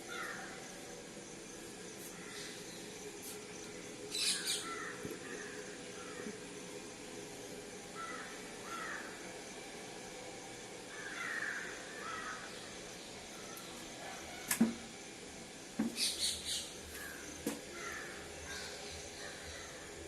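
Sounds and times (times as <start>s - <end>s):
hissy noises: 0.0s - 7.6s
bird calling: 4.1s - 6.3s, 15.9s - 19.7s.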